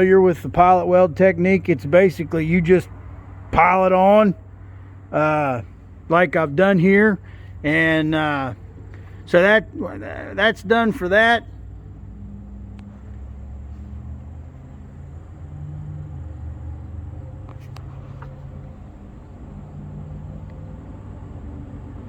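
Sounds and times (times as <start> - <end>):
engine running: 0.0 - 22.0
faint clicks: 12.7 - 13.2.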